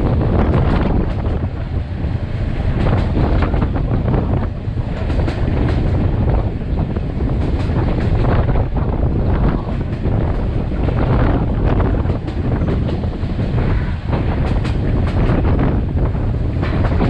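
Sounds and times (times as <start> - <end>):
passenger train running: 0.0 - 17.0
wind buffeting microphone: 0.0 - 17.0.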